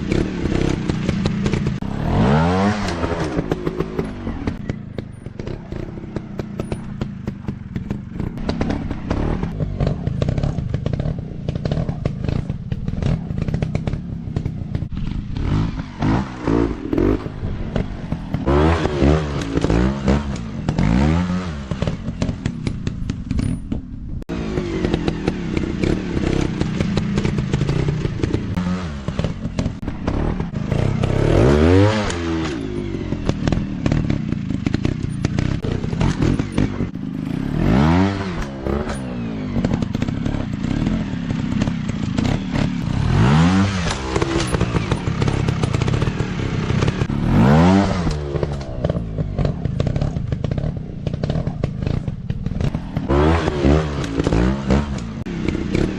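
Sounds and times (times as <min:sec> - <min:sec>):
dirt bike engines revving: 0:00.0 - 0:55.9
clattering and scraping: 0:25.8 - 0:55.9.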